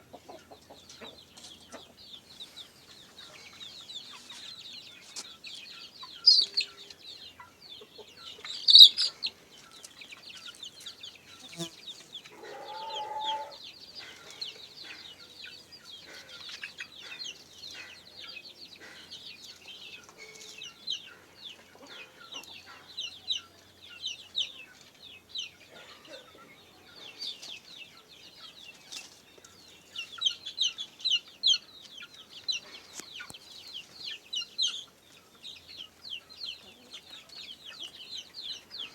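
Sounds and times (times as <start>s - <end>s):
chickens peeping and clucking: 0.0s - 38.9s
lower chicken call: 12.4s - 13.6s.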